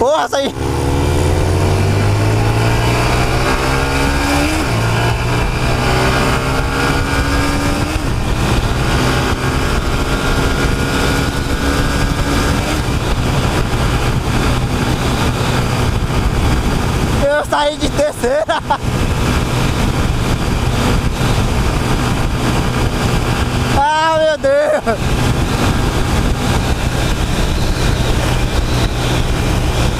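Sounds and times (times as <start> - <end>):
motorcycle engine accelerating: 0.0 - 29.9.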